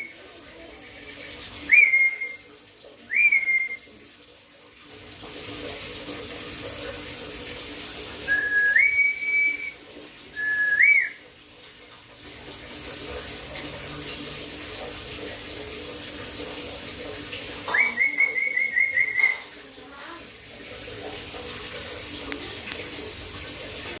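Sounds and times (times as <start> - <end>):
whistled notes: 1.6 - 2.5, 3.1 - 3.9, 8.3 - 11.2, 17.7 - 19.6.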